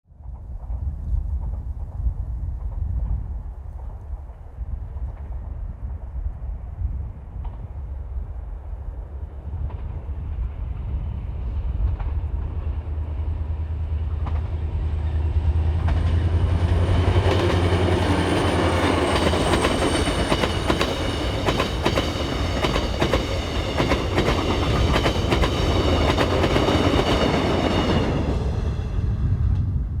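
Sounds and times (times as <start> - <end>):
diesel locomotive engine drone: 0.2 - 30.0
train wheels clacking over rail joints: 14.1 - 14.7, 15.4 - 28.1
high ringing whine of wheels: 16.2 - 23.8.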